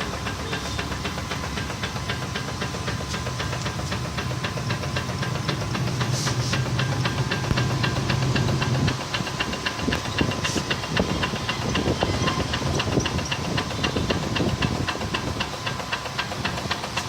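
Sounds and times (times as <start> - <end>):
fast even ticking: 0.0 - 17.0
steady high motor whine: 0.0 - 17.0.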